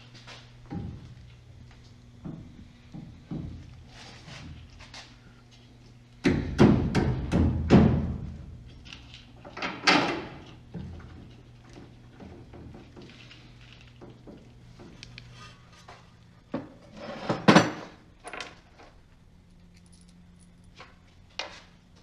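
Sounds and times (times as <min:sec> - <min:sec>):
metal tools clinking: 0:19.5 - 0:20.9.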